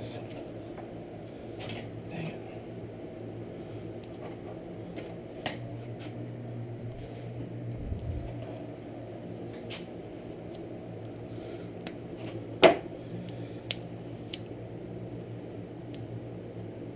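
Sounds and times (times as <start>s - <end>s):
low background hum: 0.0s - 16.9s.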